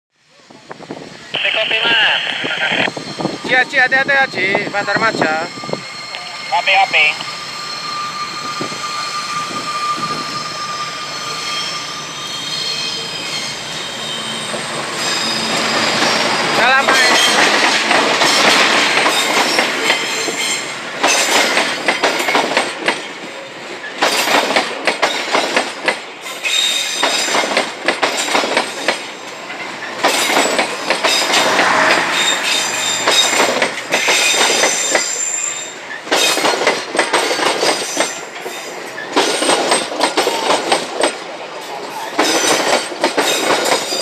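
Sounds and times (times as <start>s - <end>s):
wheels squealing on rails: 2.7s - 44.0s
train wheels clattering over rails: 14.5s - 44.0s.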